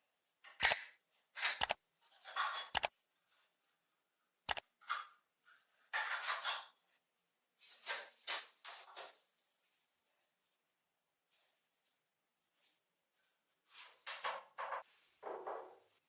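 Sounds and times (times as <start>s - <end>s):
sharp click: 1.4s - 1.8s.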